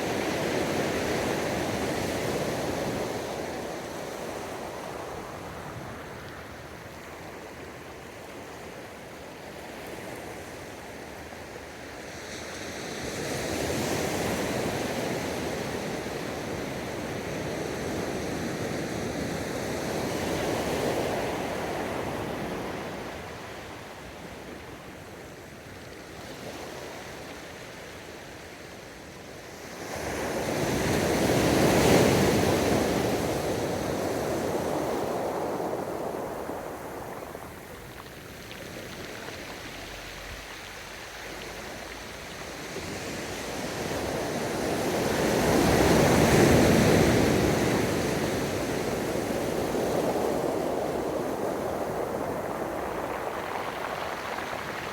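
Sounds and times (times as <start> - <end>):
ocean waves breaking: 33.6 - 54.9.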